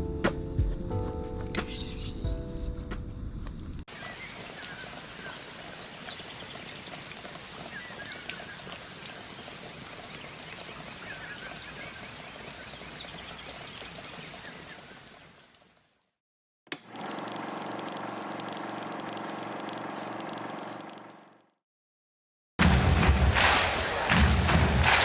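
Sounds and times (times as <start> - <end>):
faint chirps: 3.9 - 9.6.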